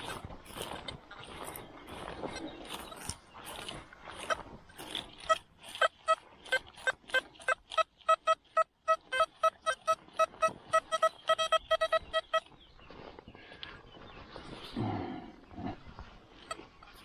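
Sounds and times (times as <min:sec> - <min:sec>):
metal detector beeping: 0:05.2 - 0:12.5.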